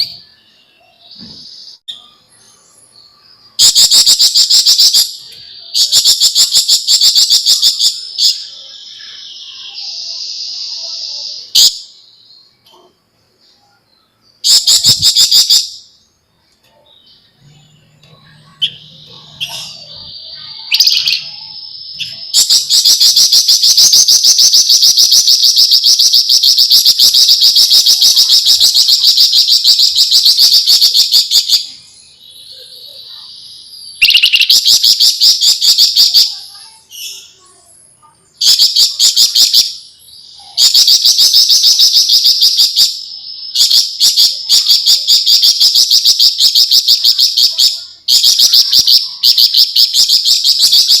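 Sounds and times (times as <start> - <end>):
high bird notes: 13.5 - 51.0.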